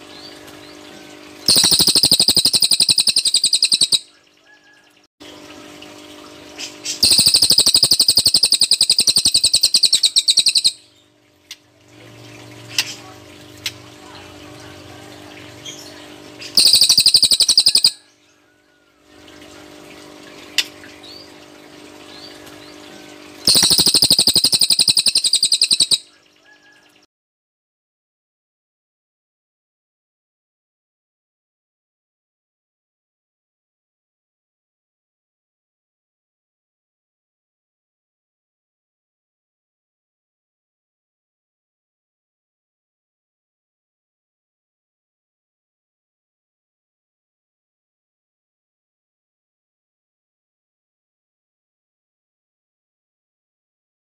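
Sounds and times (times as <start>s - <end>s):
bird rapid pulsed trill: 1.4s - 4.2s, 7.0s - 10.9s, 16.6s - 18.2s, 23.4s - 26.7s
faint bird chirps: 1.5s - 5.0s, 7.0s - 11.0s, 15.6s - 18.8s, 23.4s - 27.0s.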